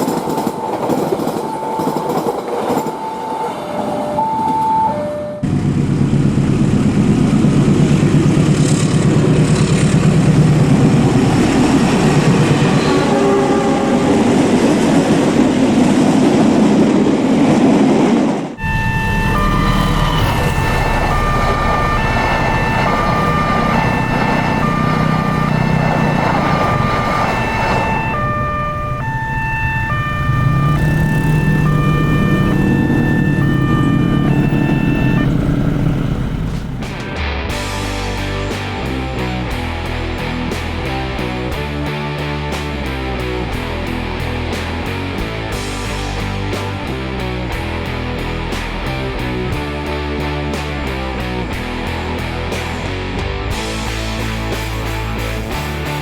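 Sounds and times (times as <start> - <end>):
crossing bell two-tone beeping: 0.0 - 5.5, 18.6 - 35.6
locomotive engine drone: 0.0 - 17.5, 18.4 - 56.0
train wheel noise: 0.0 - 37.9.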